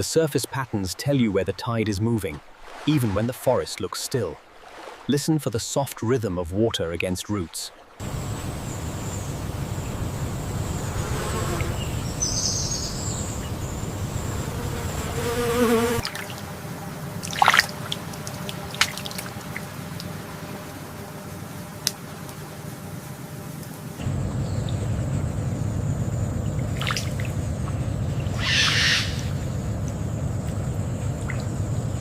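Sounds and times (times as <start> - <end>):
insects buzzing: 8.0 - 32.0
steady low hum: 8.0 - 32.0
water trickling: 16.0 - 22.4, 23.6 - 28.4, 29.3 - 32.0.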